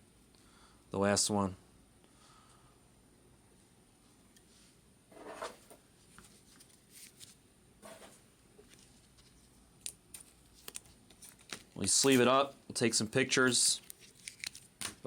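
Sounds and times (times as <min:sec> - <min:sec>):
trading cards rustling and clicking: 0:06.2 - 0:08.0, 0:08.6 - 0:12.4, 0:13.2 - 0:15.0.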